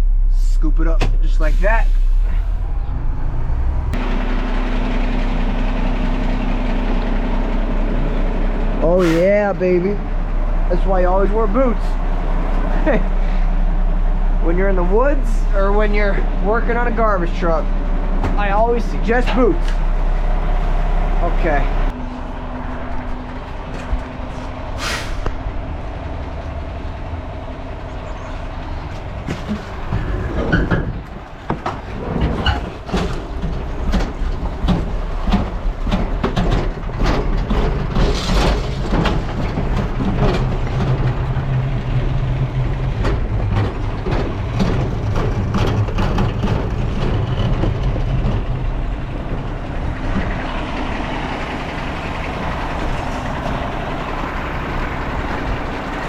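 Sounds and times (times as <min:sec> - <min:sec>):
garbage truck engine running: 0:00.0 - 0:56.0
metal debris clanking: 0:29.0 - 0:48.5.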